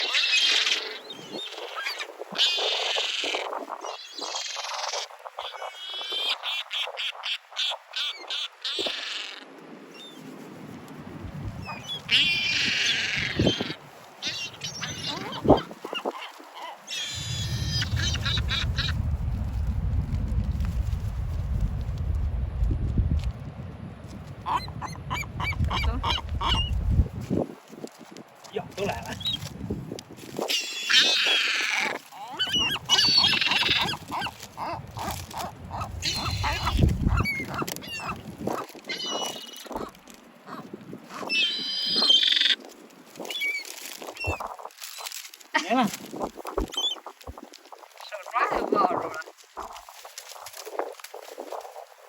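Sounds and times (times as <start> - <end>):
seabirds calling: 0.0 - 10.2, 11.6 - 19.0, 24.4 - 26.8, 30.4 - 42.6, 43.2 - 45.7, 46.5 - 47.4
low wind rumble: 9.6 - 30.5, 31.9 - 42.2
seabirds honking calls: 11.6 - 18.9, 24.4 - 26.7, 30.6 - 38.2
short repeated bird calls: 11.7 - 18.9
low rumble: 17.1 - 27.2.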